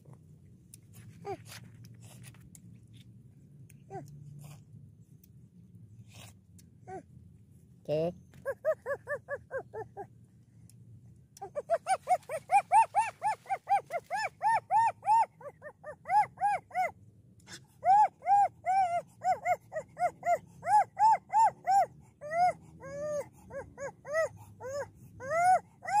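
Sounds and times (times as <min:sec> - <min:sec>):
dog yipping: 0:08.4 - 0:10.1, 0:11.4 - 0:26.0.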